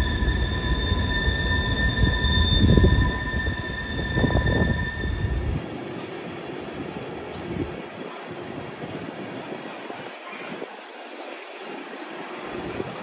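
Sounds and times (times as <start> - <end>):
high-pitched wheel squeal: 0.0 - 5.6
freight train wheels rumbling: 0.0 - 9.9.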